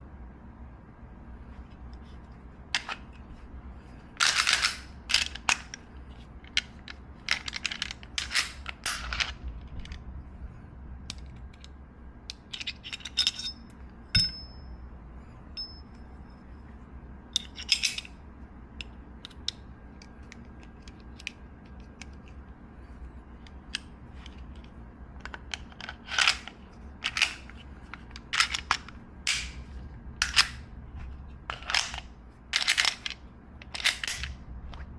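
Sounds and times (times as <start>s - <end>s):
pistol parts clicking and clacking: 4.2s - 5.8s, 6.5s - 9.4s, 17.3s - 18.2s, 24.6s - 30.6s, 31.5s - 34.4s
high metallic ring: 13.3s - 14.9s, 15.5s - 16.4s.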